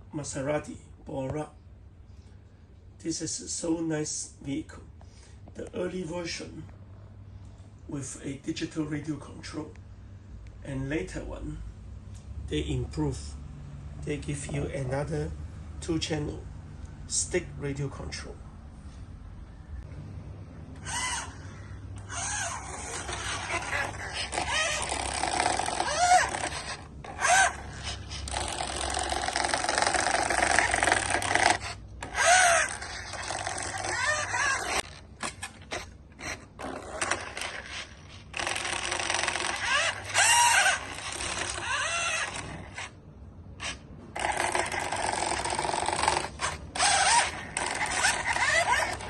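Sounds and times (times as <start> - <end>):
toy car motor gear whine: 20.8 - 21.4, 22.0 - 43.0, 43.6 - 49.0.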